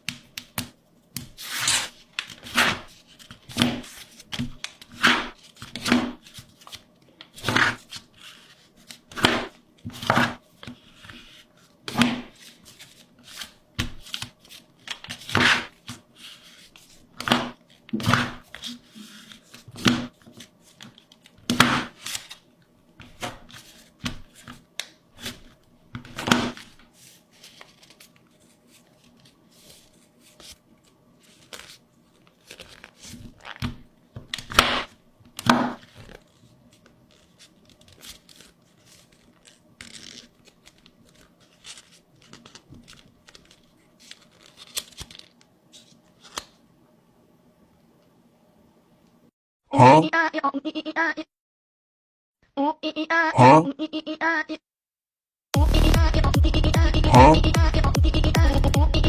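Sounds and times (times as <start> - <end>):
paper tearing and crinkling: 1.3 - 22.4, 25.2 - 33.7, 34.4 - 46.6.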